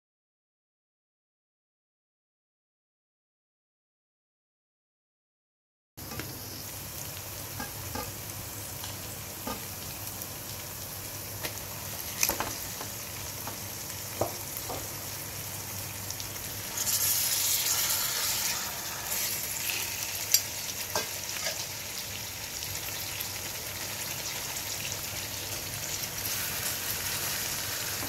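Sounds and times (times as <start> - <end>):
food sizzling in hot oil: 6.0 - 28.0.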